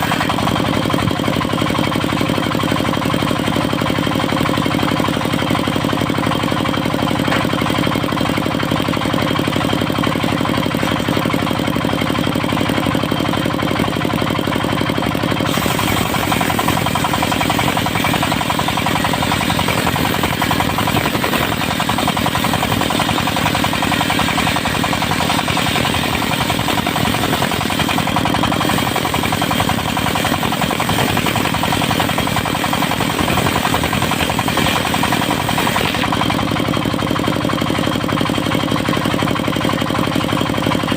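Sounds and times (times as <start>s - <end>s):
saw blade cutting log: 0.0s - 2.8s, 9.1s - 13.2s, 15.0s - 36.8s
saw mill engine running: 0.0s - 40.9s.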